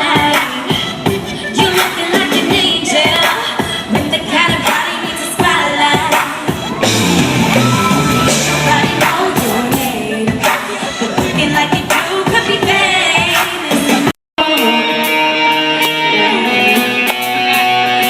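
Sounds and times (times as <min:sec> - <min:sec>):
woman singing: 0:00.0 - 0:06.8, 0:07.8 - 0:15.0
live band with strong bass: 0:03.9 - 0:18.0.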